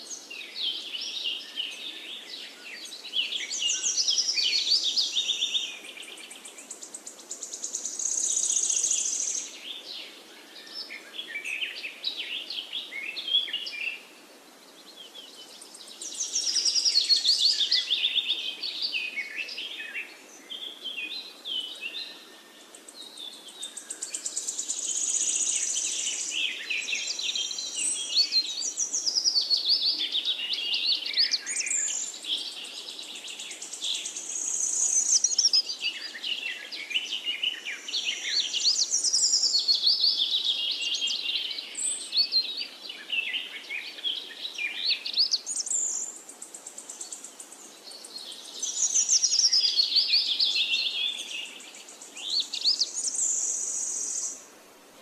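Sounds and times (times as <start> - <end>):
small birds chirping and twittering: 0.0 - 55.0.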